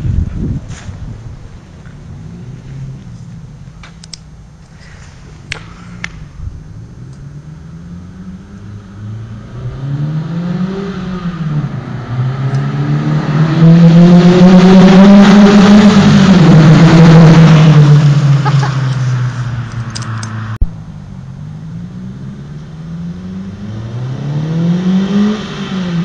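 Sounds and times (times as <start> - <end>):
car engine exhaust revving: 0.6 - 26.0
sharp clicks: 3.8 - 4.3, 19.7 - 20.7.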